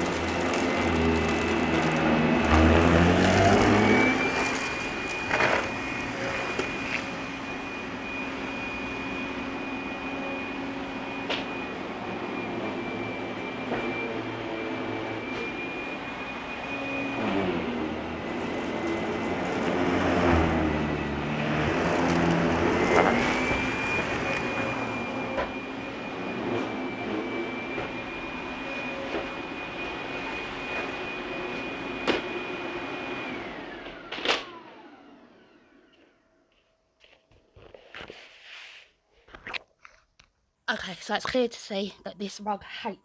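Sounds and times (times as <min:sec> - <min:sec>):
vacuum cleaner whine: 0:00.0 - 0:39.0.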